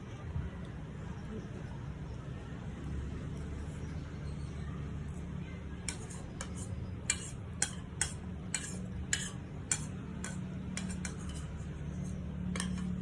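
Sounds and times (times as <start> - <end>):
spoon scraping against bowl: 5.8 - 13.0.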